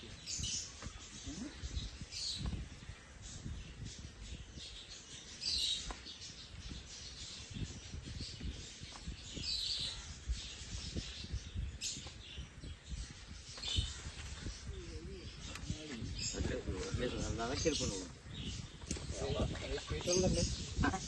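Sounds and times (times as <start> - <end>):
low bumps and rustling: 5.8 - 21.0.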